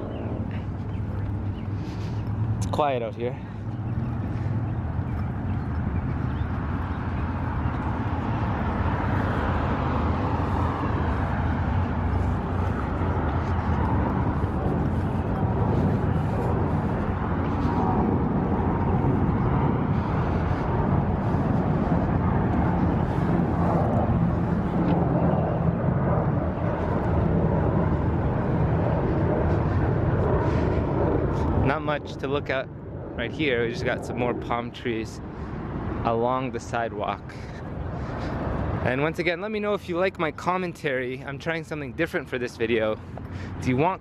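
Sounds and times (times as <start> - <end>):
road traffic passing: 0.0 - 44.0.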